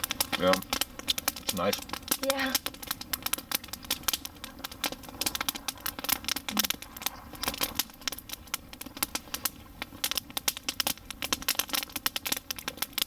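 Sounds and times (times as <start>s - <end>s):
campfire crackling and snapping: 0.0s - 13.0s.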